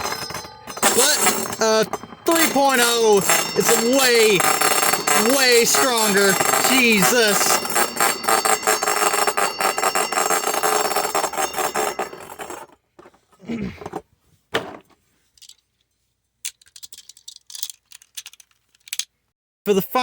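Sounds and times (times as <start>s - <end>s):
spinning tops clashing and grinding: 0.0s - 12.6s
clicks and knocks of handling: 16.4s - 19.1s.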